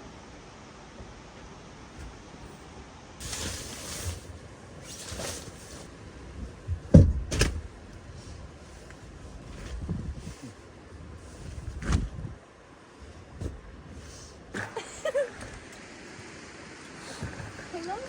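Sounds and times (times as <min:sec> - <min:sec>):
sliding swishes: 0:03.2 - 0:05.9.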